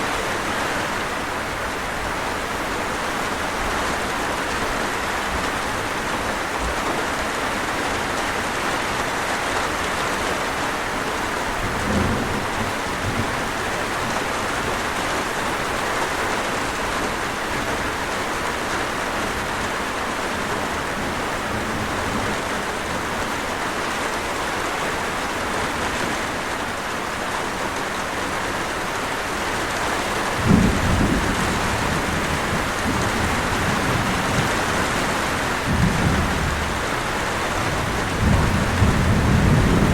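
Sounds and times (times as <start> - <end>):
heavy rain falling: 0.0 - 39.9
thunder rumbles: 11.4 - 15.6, 30.3 - 39.9.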